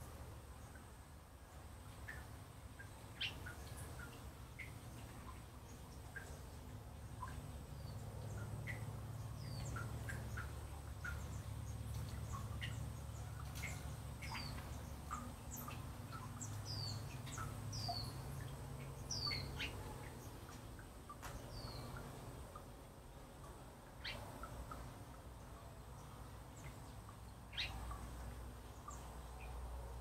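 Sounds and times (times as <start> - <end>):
low steady rumble: 0.0 - 30.0
birds chirping and calling: 7.2 - 22.6, 27.5 - 28.1.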